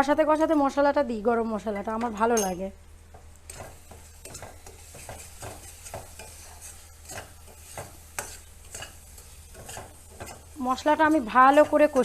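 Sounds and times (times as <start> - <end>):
faint sizzle of frying: 0.0 - 12.0
utensil scraping paste in a pan: 3.5 - 12.0.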